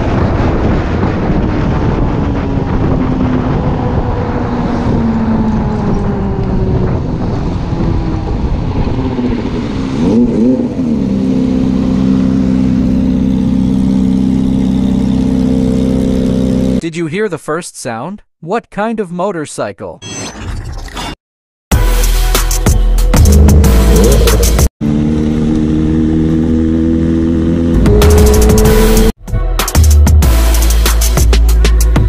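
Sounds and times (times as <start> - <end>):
motorcycle engine running and revving: 0.0 - 16.8, 23.1 - 29.2.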